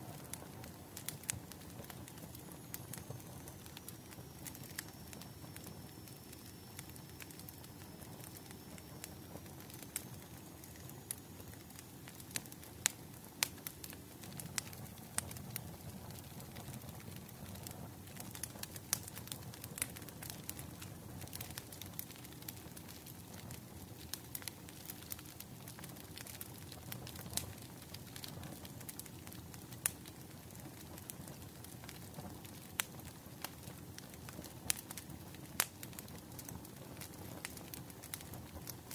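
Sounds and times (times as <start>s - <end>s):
bonfire crackling: 0.0s - 38.9s.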